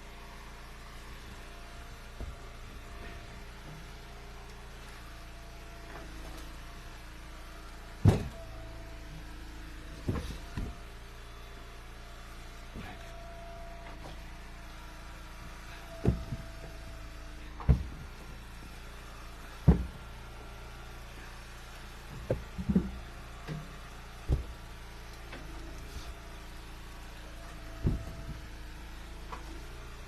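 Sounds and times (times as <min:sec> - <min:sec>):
low hum: 0:00.0 - 0:30.0
firewood dropping with wooden thuds: 0:01.2 - 0:03.9, 0:08.0 - 0:11.0, 0:15.6 - 0:18.5, 0:19.3 - 0:20.2, 0:21.8 - 0:26.4, 0:27.4 - 0:29.7.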